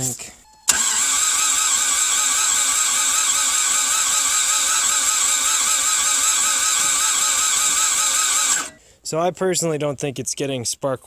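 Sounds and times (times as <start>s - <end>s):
starter motor cranking engine: 0.7s - 8.8s.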